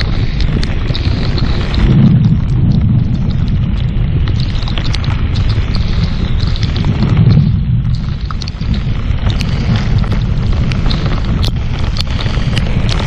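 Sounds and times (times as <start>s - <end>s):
heavy rain pelting a boat: 0.0s - 13.0s
low rumble: 0.0s - 13.0s.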